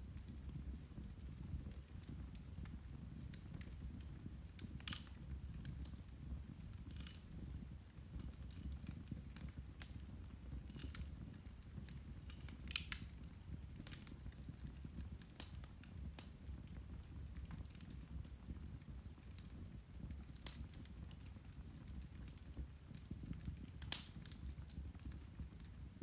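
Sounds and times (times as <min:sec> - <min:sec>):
peat fire crackling: 0:00.0 - 0:26.0.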